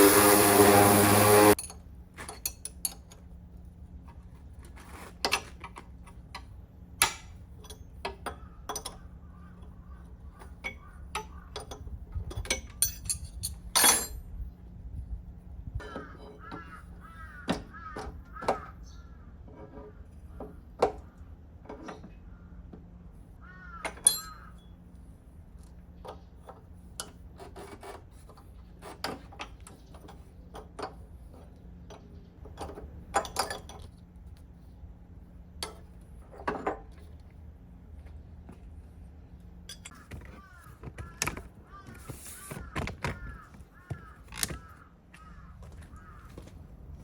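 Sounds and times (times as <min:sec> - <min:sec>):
metal tools clinking: 0:01.5 - 0:03.2, 0:11.6 - 0:14.2, 0:24.0 - 0:24.5, 0:39.7 - 0:40.0
crow cawing: 0:16.0 - 0:19.3, 0:23.4 - 0:24.5, 0:39.9 - 0:46.5.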